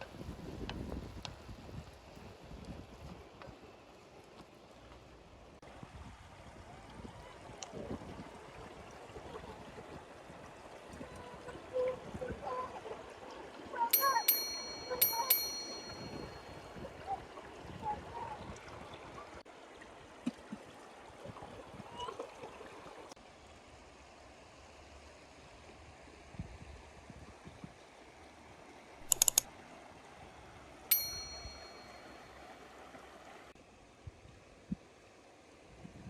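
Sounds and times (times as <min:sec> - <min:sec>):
stream running: 0:00.0 - 0:36.0
cookware ringing ding: 0:13.9 - 0:16.7, 0:30.9 - 0:32.2
sharp clinks: 0:14.0 - 0:16.6, 0:29.0 - 0:29.4, 0:30.9 - 0:32.1.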